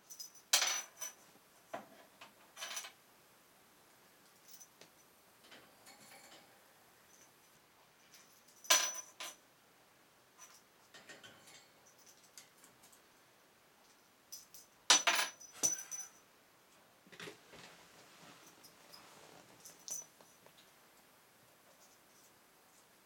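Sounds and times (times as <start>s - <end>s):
small metal bell jingling: 14.3s - 16.2s, 18.4s - 20.4s.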